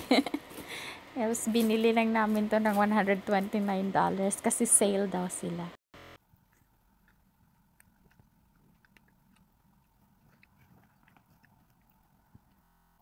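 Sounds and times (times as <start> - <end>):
faint chewing mouth clicks: 6.4 - 12.7.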